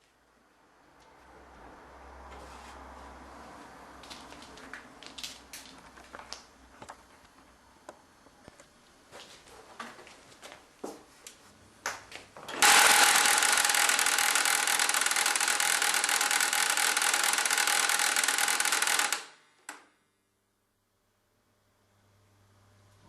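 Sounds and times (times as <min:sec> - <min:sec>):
printer rattling with a whine: 0:12.5 - 0:19.8
light printer clicks: 0:12.6 - 0:19.9.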